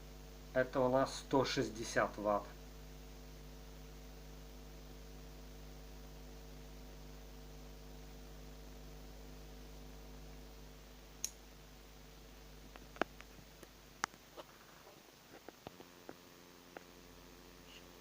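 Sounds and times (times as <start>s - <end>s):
electric cooling fan motor humming: 0.0s - 18.0s
sharp click: 11.2s - 11.4s.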